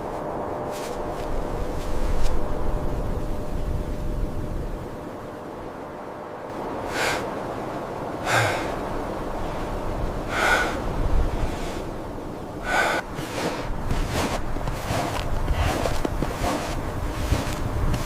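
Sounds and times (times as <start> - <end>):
background hiss: 0.0 - 18.0
short forceful breaths: 6.9 - 7.3, 8.2 - 8.8, 10.3 - 10.8, 12.6 - 18.0.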